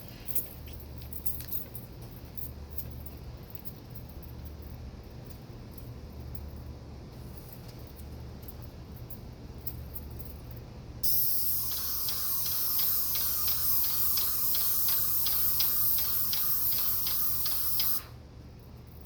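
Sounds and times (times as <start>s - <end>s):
paint spray gun hissing: 11.0s - 18.2s
regular ticking: 11.7s - 18.0s.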